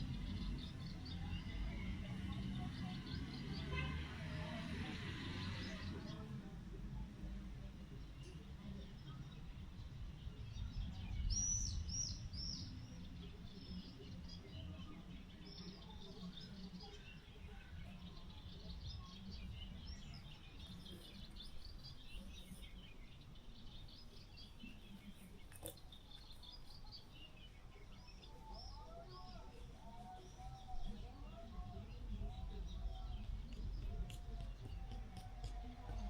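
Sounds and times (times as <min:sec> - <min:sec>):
small birds chirping: 0:00.0 - 0:36.0
steady low rumble: 0:30.7 - 0:36.0.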